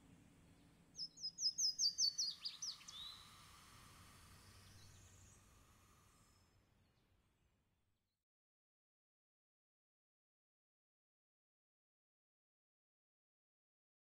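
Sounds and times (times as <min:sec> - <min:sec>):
songbird singing: 0:01.0 - 0:03.6.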